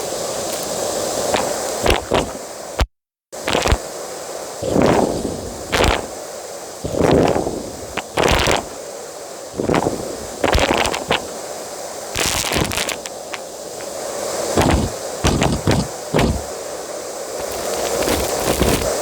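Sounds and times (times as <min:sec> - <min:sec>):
debris rattling up nozzle: 0:12.2 - 0:13.4, 0:14.5 - 0:16.6, 0:17.4 - 0:19.0.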